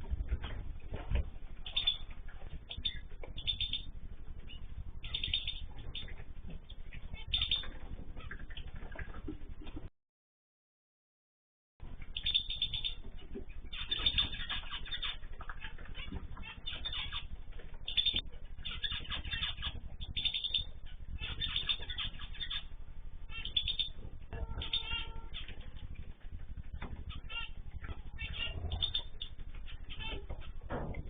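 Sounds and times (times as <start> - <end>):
small cage birds chirping: 0.0 - 9.9, 11.8 - 31.0.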